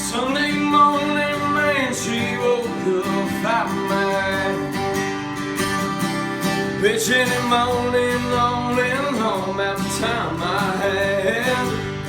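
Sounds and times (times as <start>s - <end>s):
man singing: 0.0s - 5.2s, 6.7s - 12.0s
strummed acoustic guitar: 0.0s - 12.0s.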